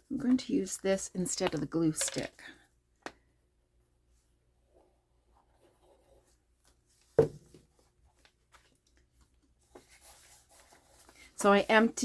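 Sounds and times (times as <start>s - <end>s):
knock on tabletop: 7.2s - 7.5s.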